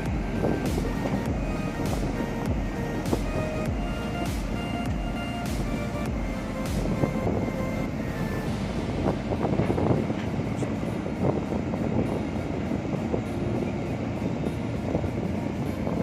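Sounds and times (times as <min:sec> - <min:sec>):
low mechanical rumble: 0:00.0 - 0:16.0.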